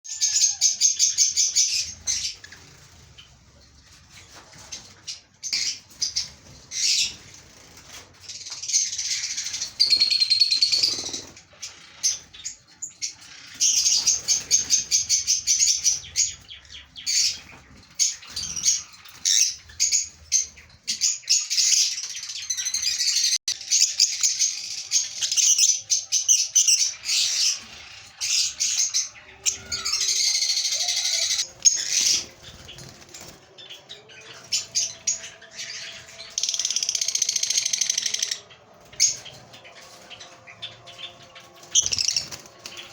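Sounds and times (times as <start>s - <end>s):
lovebirds chattering: 8.8s - 42.9s.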